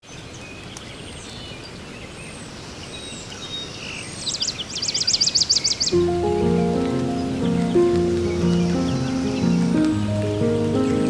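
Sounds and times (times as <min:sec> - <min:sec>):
birds singing: 0:00.0 - 0:11.0
bird trill: 0:04.4 - 0:11.0
rain hissing: 0:05.9 - 0:11.0
soft music with held notes: 0:05.9 - 0:11.0.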